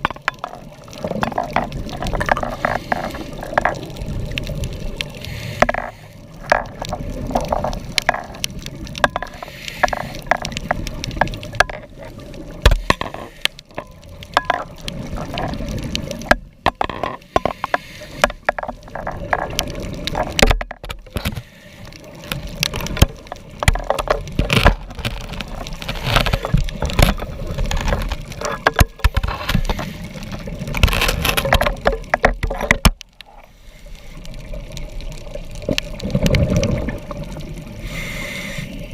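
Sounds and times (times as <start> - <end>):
underwater regulator bubbling: 0.0 - 21.4
sharp clicks and crackles: 0.0 - 38.7.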